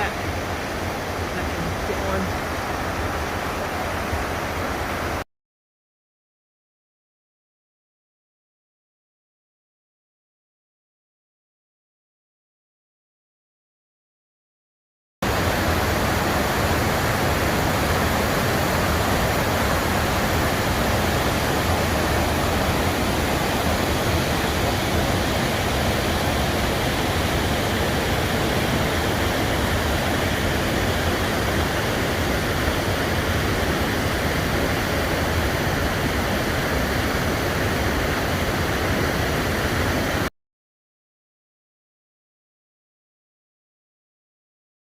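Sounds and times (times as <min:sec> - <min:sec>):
waterfall rushing: 0:00.0 - 0:05.2, 0:15.2 - 0:40.3.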